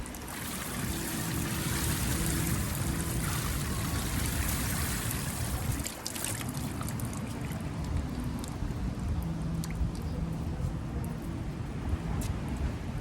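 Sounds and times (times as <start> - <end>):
waves washing on sandy beach: 0.0 - 9.9.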